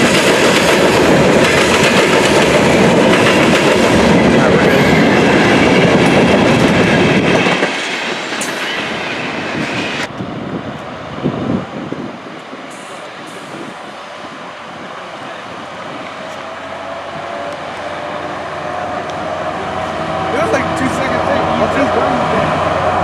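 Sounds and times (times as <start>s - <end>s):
train wheels clattering: 0.0s - 10.1s.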